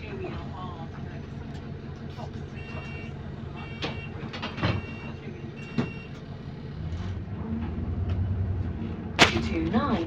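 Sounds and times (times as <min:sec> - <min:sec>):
bus engine running and revving: 0:00.0 - 0:10.0
two-tone beeps: 0:04.8 - 0:06.1.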